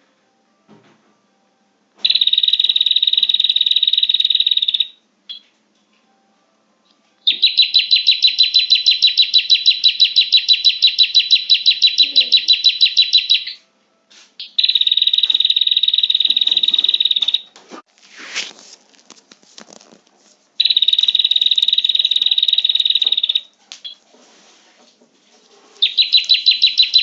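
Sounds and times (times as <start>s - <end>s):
bird trilling: 7.3s - 13.6s, 25.8s - 27.0s.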